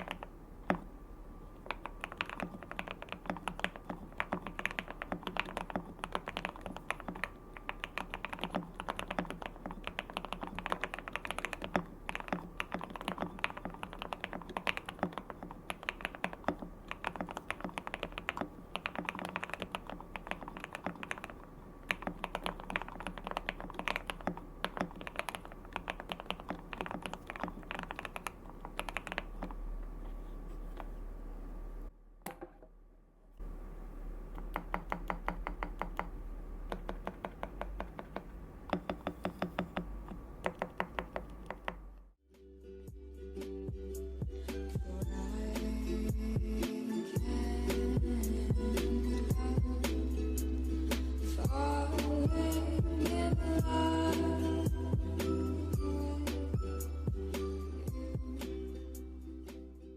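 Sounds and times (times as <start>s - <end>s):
mechanical keyboard typing: 0.0s - 0.9s, 1.6s - 29.6s, 34.3s - 41.8s.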